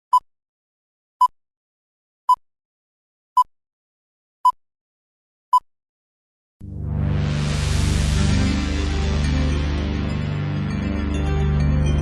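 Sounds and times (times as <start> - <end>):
music with heavy bass: 6.6 - 12.0.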